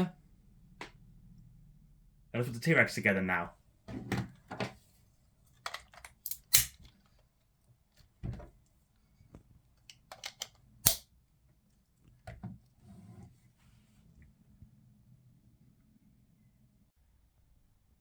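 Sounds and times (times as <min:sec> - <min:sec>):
plastic toy parts clicking: 0:09.9 - 0:11.0.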